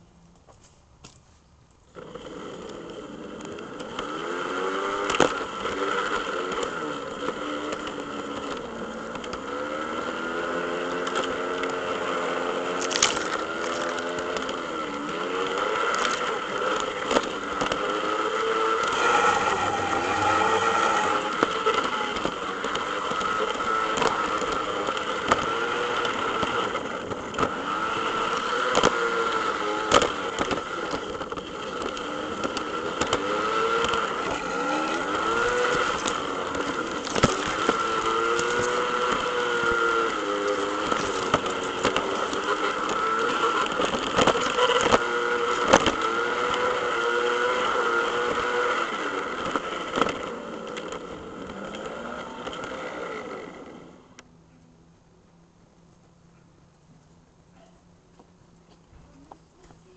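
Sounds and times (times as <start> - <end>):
model train whine: 13.1 - 54.2.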